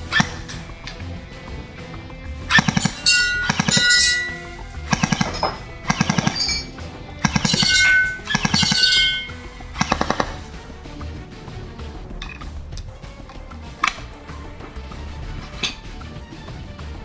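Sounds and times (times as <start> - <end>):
background music: 0.0 - 17.0
airsoft pistol full-auto bursts: 2.6 - 10.6.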